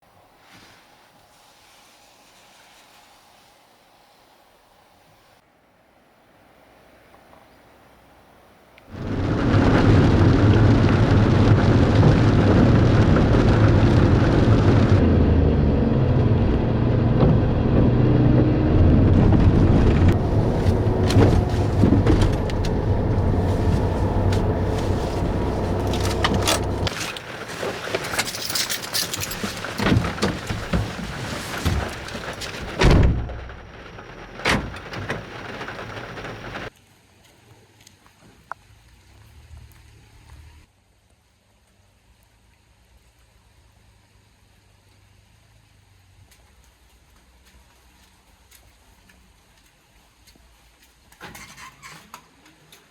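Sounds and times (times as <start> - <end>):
van engine rumbling: 8.9 - 36.7
sharp clicks and knocks: 20.0 - 27.2.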